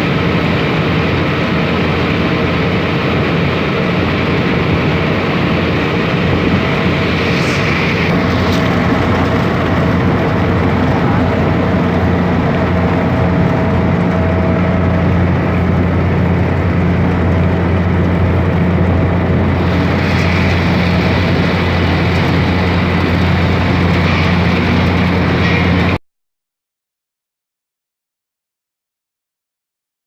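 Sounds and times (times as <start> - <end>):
boat engine droning: 0.0 - 26.0
hiss: 7.0 - 8.7.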